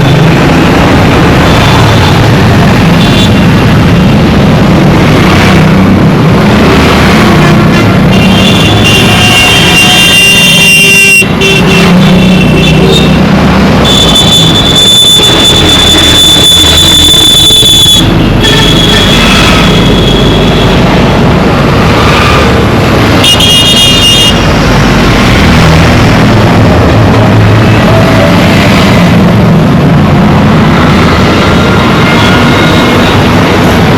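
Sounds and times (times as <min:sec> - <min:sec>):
road traffic engines: 0:00.0 - 0:33.9
vehicle horns honking: 0:08.1 - 0:13.2, 0:13.8 - 0:20.9, 0:23.2 - 0:24.5.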